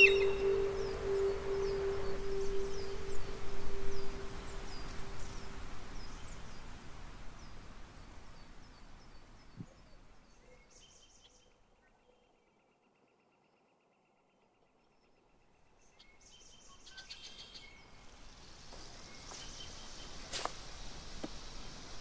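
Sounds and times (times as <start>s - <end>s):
faint insect-like trill: 0.0s - 6.7s
low steady tone: 0.0s - 8.1s
steady hiss: 0.0s - 10.2s, 17.2s - 22.0s
bird chirping: 0.0s - 20.3s.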